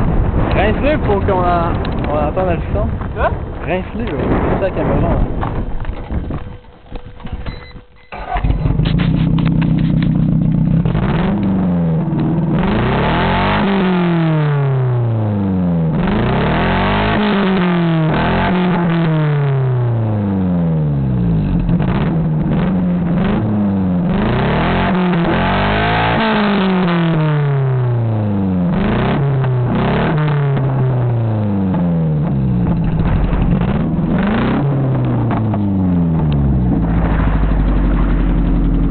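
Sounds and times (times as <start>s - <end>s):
engine starting and revving: 7.3s - 15.1s, 15.9s - 20.0s, 21.3s - 28.0s, 28.7s - 38.9s.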